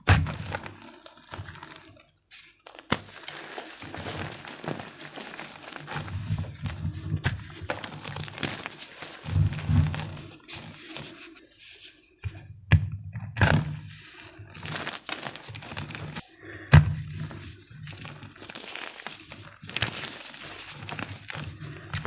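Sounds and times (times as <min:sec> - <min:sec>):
chalk crumbling by hand: 0:00.5 - 0:11.2, 0:17.8 - 0:21.5.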